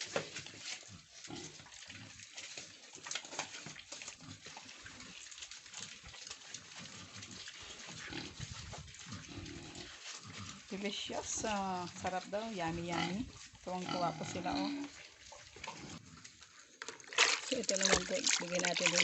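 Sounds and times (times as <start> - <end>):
pigs crunching leaves: 0.0 - 19.0
pigs grunting: 0.8 - 2.3, 3.2 - 16.4.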